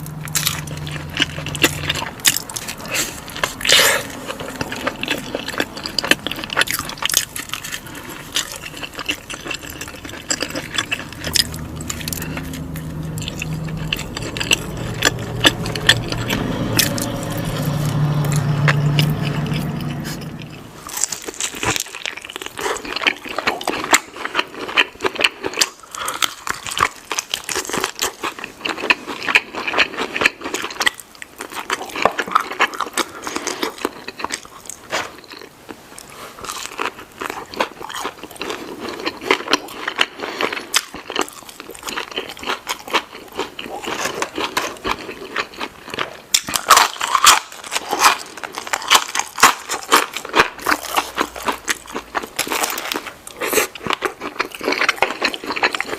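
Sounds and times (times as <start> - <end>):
biting and chewing food: 0.0 - 55.9.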